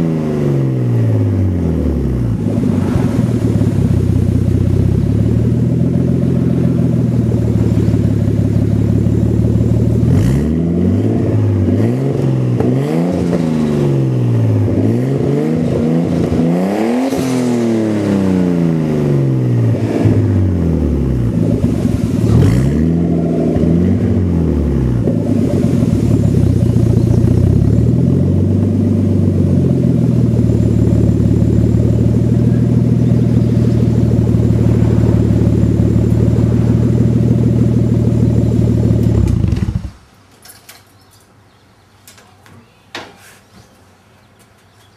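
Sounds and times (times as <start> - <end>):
car engine idling and revving: 0.0 - 40.2.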